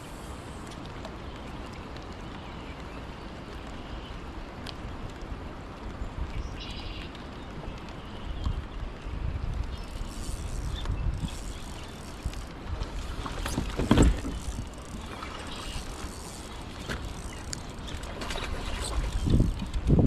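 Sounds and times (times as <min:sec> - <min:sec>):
wind rumbling on microphone: 0:00.0 - 0:20.0
water lapping against a hull: 0:06.8 - 0:20.0.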